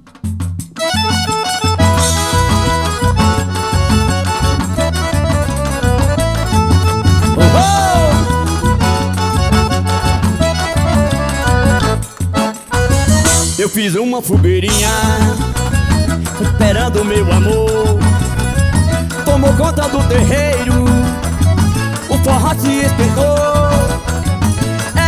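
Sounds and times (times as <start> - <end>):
accordion melody: 0.6 - 25.0
high percussion ticks: 0.7 - 25.0
bass drum beat: 1.7 - 13.7, 14.3 - 25.0.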